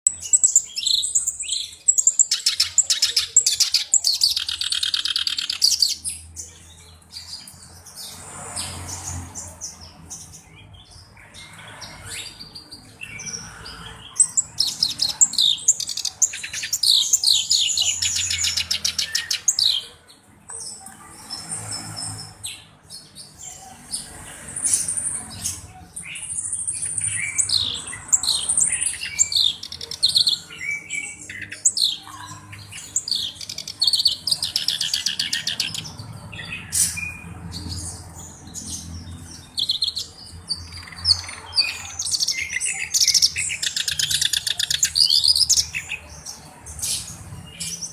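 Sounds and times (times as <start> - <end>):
harsh bird chattering: 0.0 - 6.0, 11.9 - 20.0, 26.2 - 37.2, 39.4 - 46.1
warbler singing trilled notes: 0.0 - 23.7, 24.6 - 47.9.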